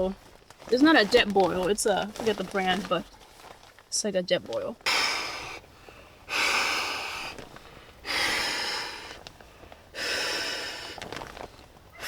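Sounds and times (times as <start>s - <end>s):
person blowing out breaths: 4.8s - 11.1s.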